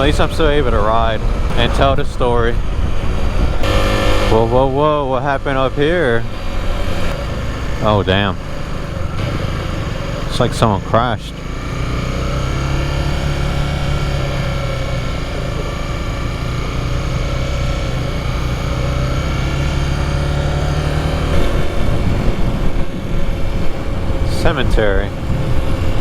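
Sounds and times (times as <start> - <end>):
wind rush over microphone: 0.0 - 4.9, 21.1 - 26.0
motorcycle engine cruising: 0.0 - 26.0.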